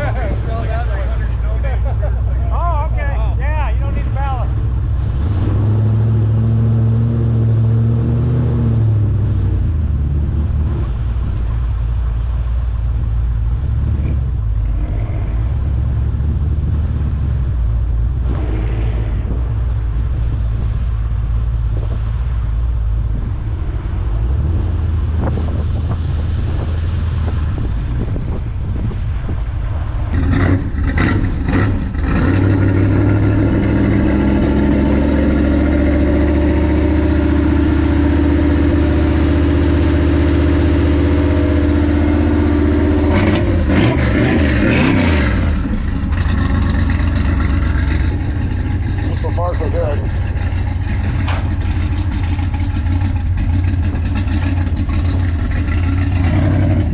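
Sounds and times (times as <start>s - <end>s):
car engine running: 0.0s - 56.9s
sharp engine knocks: 45.7s - 56.1s.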